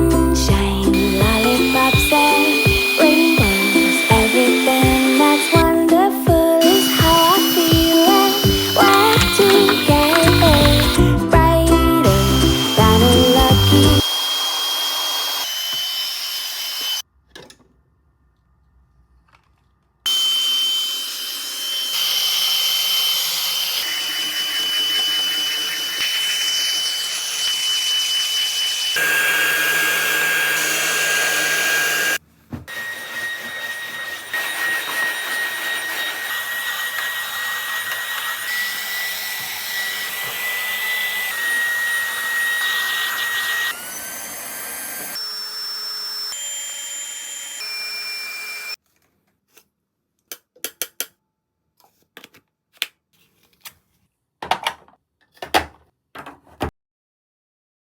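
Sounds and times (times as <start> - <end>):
handheld vacuum motor whine: 0.0 - 17.0, 20.1 - 48.8.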